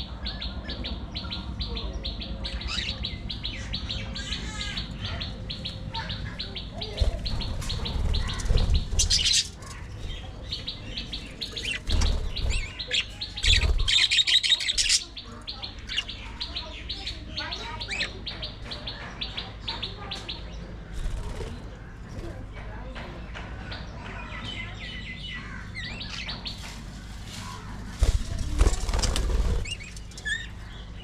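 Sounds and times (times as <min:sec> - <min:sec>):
budgerigars chattering: 0:00.8 - 0:22.1, 0:28.0 - 0:31.0.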